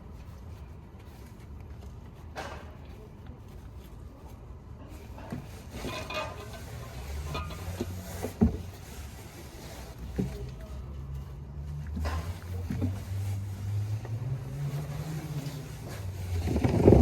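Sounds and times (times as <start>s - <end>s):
tools clattering and knocking: 5.0s - 8.7s.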